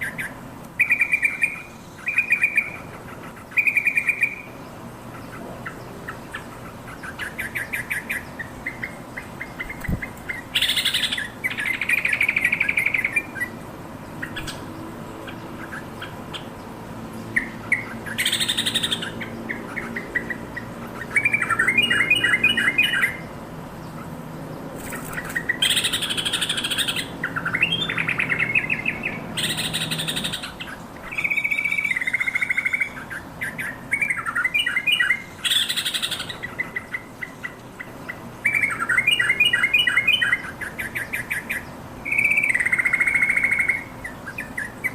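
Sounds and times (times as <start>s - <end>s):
scratchy bird calls: 0.0s - 16.6s, 17.2s - 23.3s, 23.9s - 44.9s
bird calling bubbly phrases: 25.2s - 44.9s.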